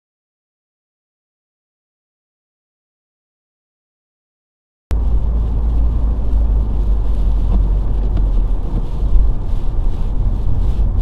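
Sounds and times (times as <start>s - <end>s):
car cabin road and engine rumble: 4.9s - 11.0s.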